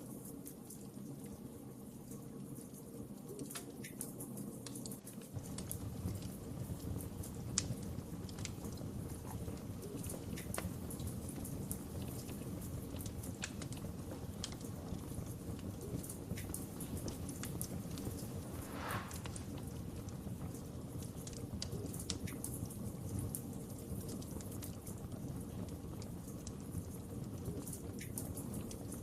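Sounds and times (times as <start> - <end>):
burning wood crackling: 16.4 - 19.6
wood fire rumbling: 16.7 - 19.8.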